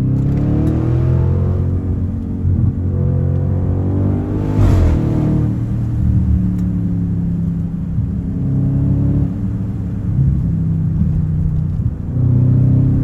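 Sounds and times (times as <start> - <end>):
car engine revving: 3.1 - 8.6.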